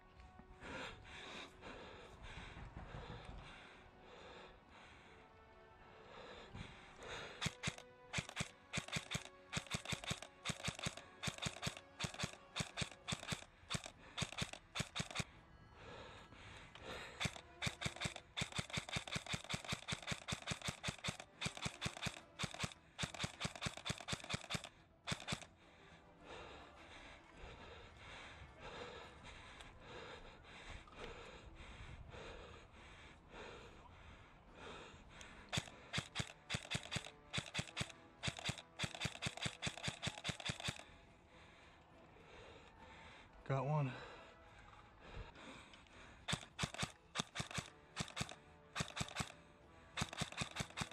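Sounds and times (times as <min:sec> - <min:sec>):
airsoft gun rapid firing: 0:07.0 - 0:15.3, 0:16.8 - 0:25.5, 0:35.4 - 0:40.9, 0:46.3 - 0:50.9.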